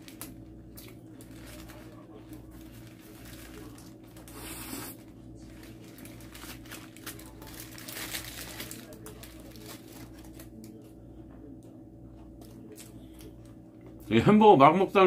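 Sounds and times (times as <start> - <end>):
paper crinkling: 0.0 - 10.8
steady low hum: 0.0 - 15.0.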